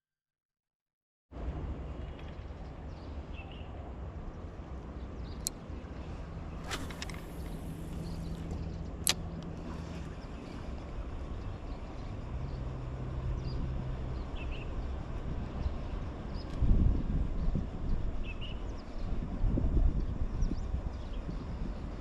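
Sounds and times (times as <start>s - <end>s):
low motor hum: 6.1s - 22.0s
sharp clicks: 6.6s - 8.4s, 9.0s - 9.5s.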